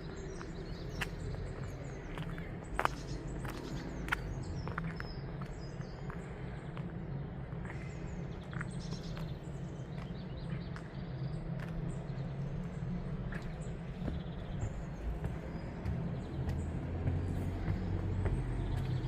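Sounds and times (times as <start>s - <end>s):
low outdoor rumble: 0.0s - 19.0s
small birds chirping: 0.0s - 19.0s.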